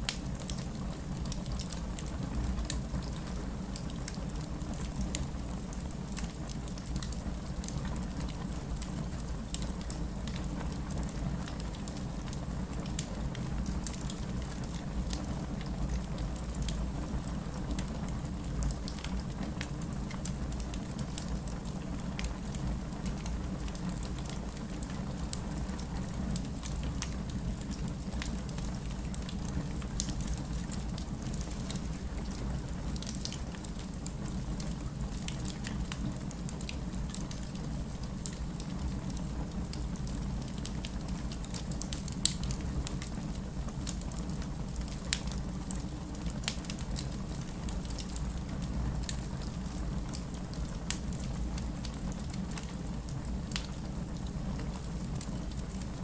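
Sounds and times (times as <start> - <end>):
fire crackling: 0.0 - 56.0
wood fire rumble and hiss: 0.0 - 56.0.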